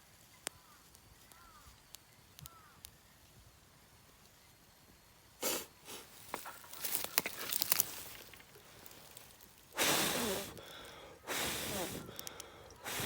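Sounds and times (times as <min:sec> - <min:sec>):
rustling: 0:05.9 - 0:10.9
sticks cracking and snapping: 0:06.4 - 0:09.7.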